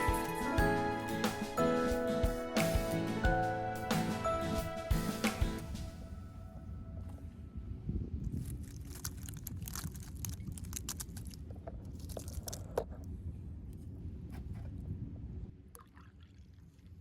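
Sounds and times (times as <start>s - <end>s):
crunching and crackling: 8.3s - 12.9s.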